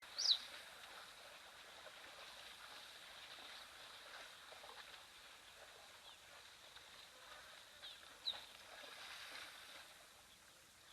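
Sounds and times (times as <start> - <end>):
faint chirps and ticks: 0.0 - 8.9.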